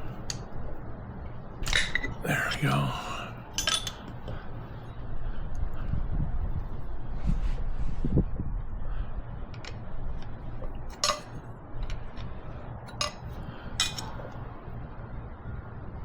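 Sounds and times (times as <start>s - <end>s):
metal tools clinking: 3.6s - 4.1s, 10.9s - 11.3s, 13.8s - 14.1s.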